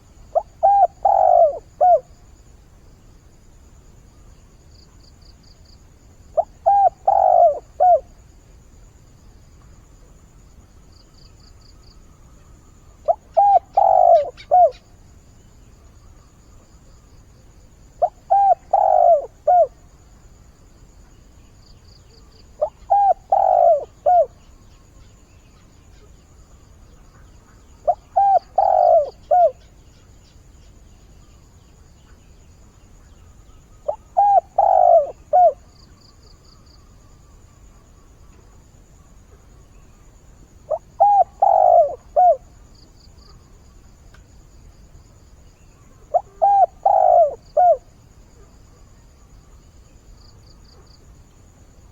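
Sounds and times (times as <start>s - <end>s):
dove cooing: 0.0s - 2.1s, 6.3s - 8.2s, 13.0s - 14.8s, 18.0s - 19.8s, 22.6s - 24.4s, 27.8s - 29.7s, 33.8s - 35.7s, 40.7s - 42.5s, 46.0s - 47.9s.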